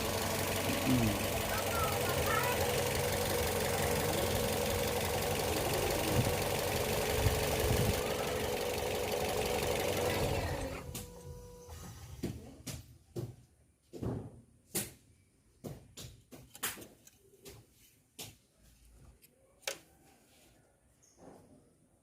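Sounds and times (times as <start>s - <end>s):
car engine running: 0.0s - 11.8s.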